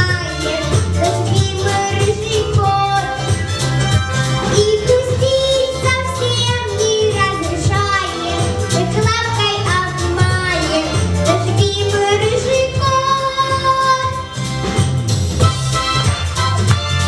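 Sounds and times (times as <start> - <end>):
girl singing: 0.0 - 3.3, 4.5 - 14.3
backing music: 0.0 - 17.0
repeating bass line: 0.0 - 17.0.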